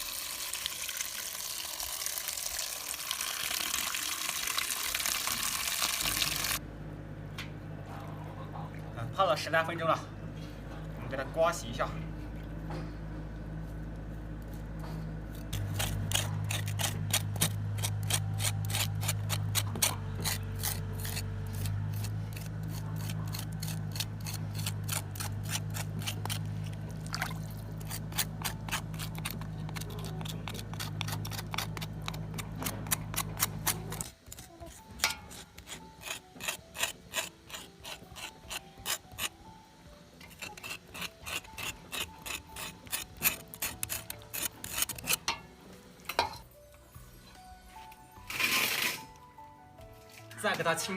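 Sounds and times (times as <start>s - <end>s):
steady low hum: 6.6s - 34.4s
knife scraping pork rind: 15.3s - 26.9s, 27.5s - 39.5s, 40.2s - 45.4s, 48.3s - 49.1s.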